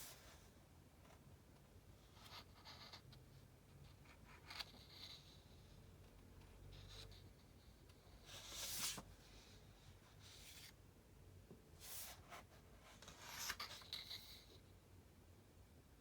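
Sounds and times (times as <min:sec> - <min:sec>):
book pages rustling: 0:08.3 - 0:09.1.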